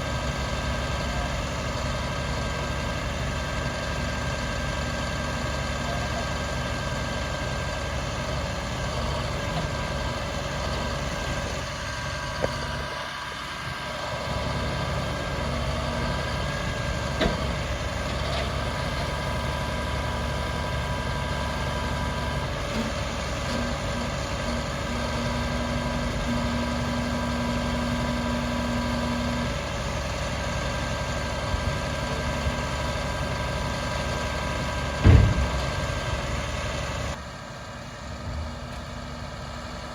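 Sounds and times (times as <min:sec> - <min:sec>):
diesel truck engine idling: 0:00.0 - 0:39.9
thump: 0:17.2 - 0:17.5, 0:35.0 - 0:36.3.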